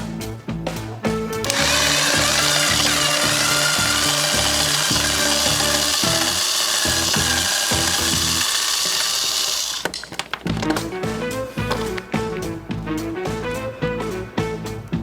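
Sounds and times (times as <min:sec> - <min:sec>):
power tool hissing: 0:01.4 - 0:10.7, 0:11.6 - 0:12.0
background music: 0:10.5 - 0:15.0.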